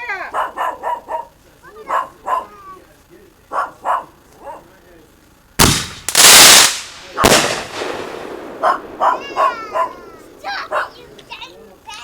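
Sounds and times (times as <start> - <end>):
dog barking: 0.2 - 2.6, 3.5 - 4.8, 8.6 - 11.2
fireworks banging: 5.6 - 12.0.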